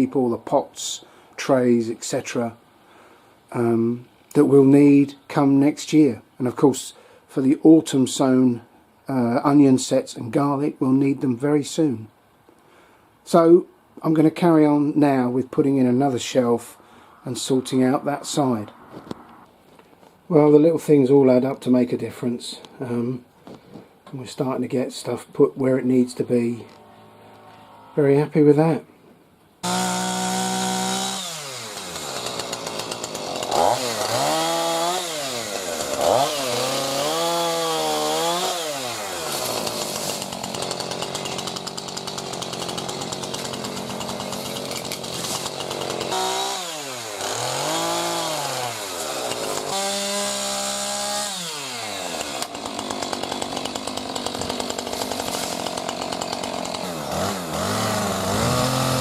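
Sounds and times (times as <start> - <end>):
power saw cutting wood: 29.6 - 59.0.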